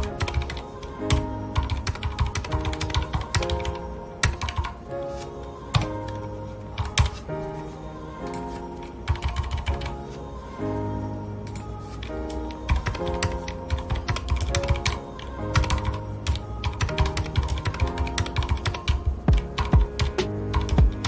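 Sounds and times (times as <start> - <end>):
mechanical keyboard typing: 0.0 - 4.7, 9.1 - 9.9, 12.7 - 21.0
soft background music: 0.0 - 21.0.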